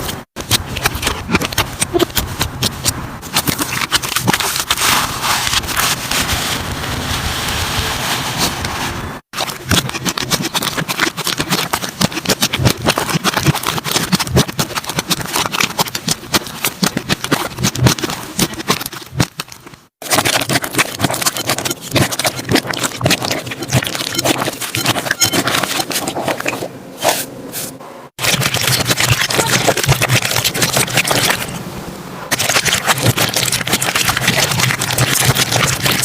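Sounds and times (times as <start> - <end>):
slime squeezed crackling and popping: 9.4 - 25.7, 32.3 - 36.0.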